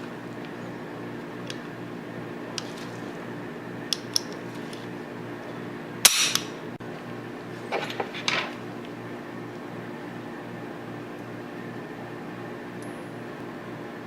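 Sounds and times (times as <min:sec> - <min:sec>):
pistol parts clicking: 0:06.1 - 0:06.5.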